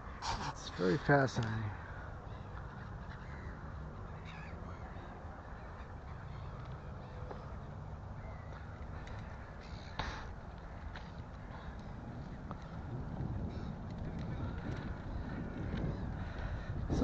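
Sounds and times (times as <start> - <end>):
wind and riding noise: 0.0 - 17.0
crow cawing: 1.7 - 7.6, 8.2 - 11.8, 13.4 - 17.0.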